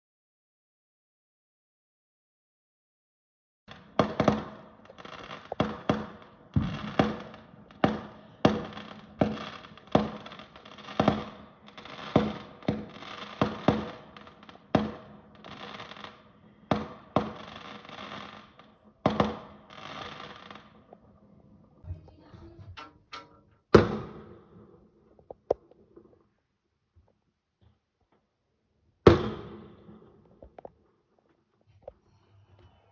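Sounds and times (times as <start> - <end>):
fireworks bangs: 3.7 - 21.1, 21.8 - 25.0, 29.1 - 30.6.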